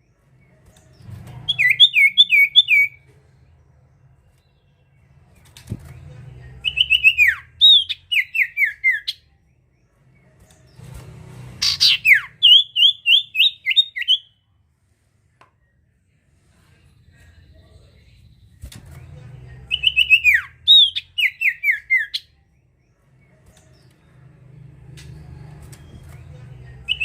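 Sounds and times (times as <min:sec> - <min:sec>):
bird whistling song: 0:01.5 - 0:03.0, 0:06.6 - 0:09.2, 0:11.6 - 0:14.4, 0:19.7 - 0:22.3.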